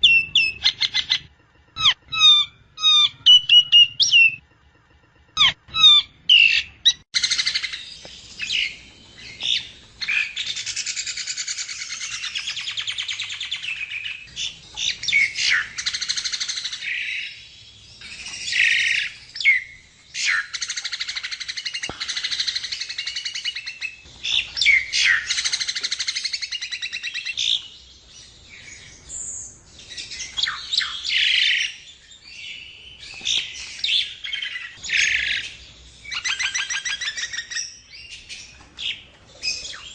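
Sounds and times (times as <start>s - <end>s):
myna singing and whistling: 0.0s - 4.4s, 5.4s - 17.4s.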